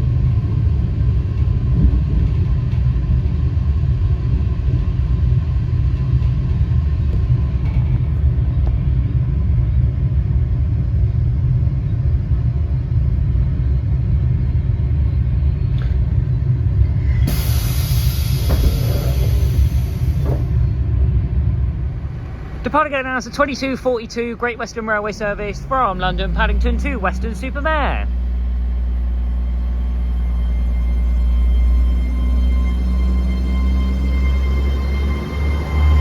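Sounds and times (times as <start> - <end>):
train rumble: 0.0 - 36.0
loud hiss: 17.0 - 20.6.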